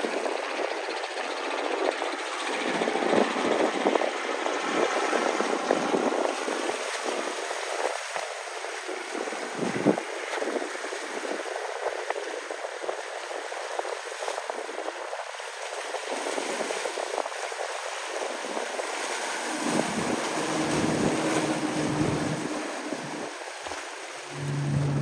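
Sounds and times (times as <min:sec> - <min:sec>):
wind: 0:00.0 - 0:25.0
boat motor droning: 0:18.4 - 0:25.0
water rushing: 0:18.4 - 0:25.0.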